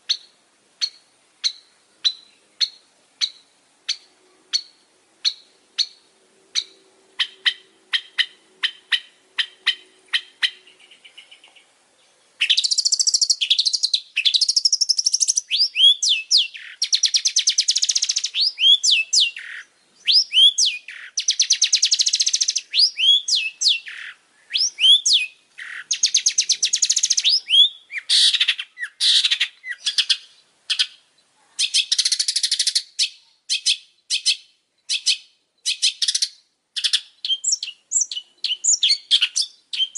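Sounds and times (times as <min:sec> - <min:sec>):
shrike singing: 0:12.4 - 0:30.9.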